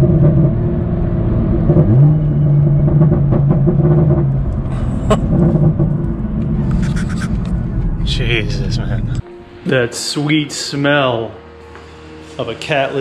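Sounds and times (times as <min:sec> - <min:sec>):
car engine drone from cabin: 0:00.0 - 0:09.6.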